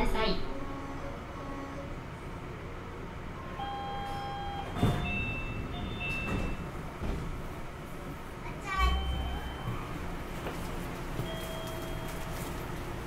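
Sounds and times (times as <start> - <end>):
low train running rumble: 0.0 - 13.0
train inverter whine: 0.0 - 13.0.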